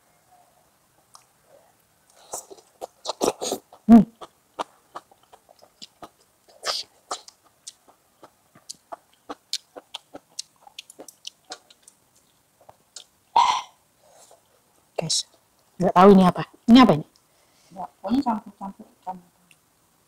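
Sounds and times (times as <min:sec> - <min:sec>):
chewing and mouth sounds: 0:02.1 - 0:13.2.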